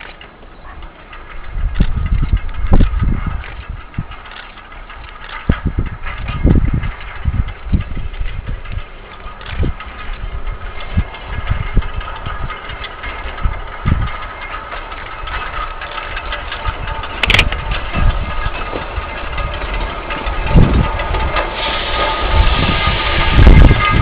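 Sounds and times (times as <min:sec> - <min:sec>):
diesel train engine running: 0:00.0 - 0:24.0
low thumps: 0:00.8 - 0:24.0
sharp click: 0:17.0 - 0:17.6.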